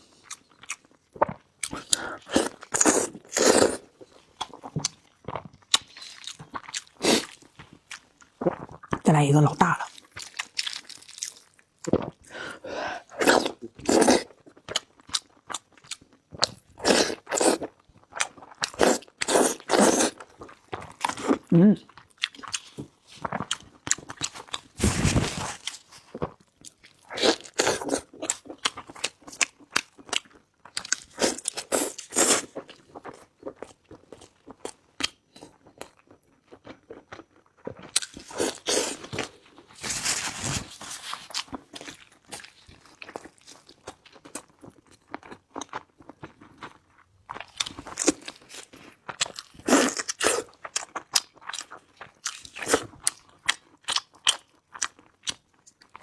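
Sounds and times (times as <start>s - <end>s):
chewing and crunching food: 0.0s - 56.0s.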